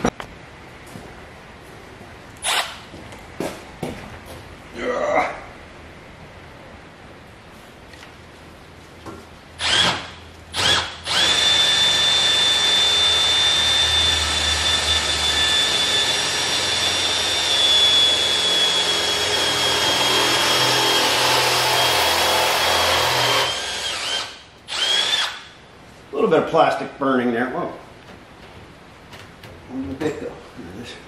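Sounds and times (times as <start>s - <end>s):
electric drill boring into steel: 9.6s - 25.5s.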